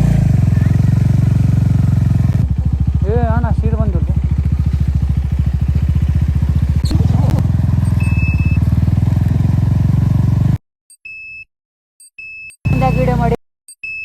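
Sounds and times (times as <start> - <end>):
motorcycle engine running: 0.0 - 10.6, 12.7 - 13.4
short high beep: 7.8 - 8.6, 11.0 - 11.5, 12.1 - 14.0.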